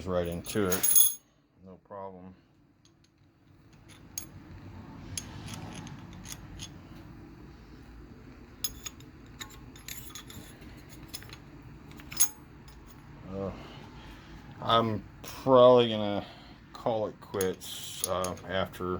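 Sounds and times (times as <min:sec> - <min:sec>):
low background hum: 0:00.0 - 0:18.9
metal engine parts clicking: 0:05.1 - 0:06.8, 0:08.6 - 0:13.0.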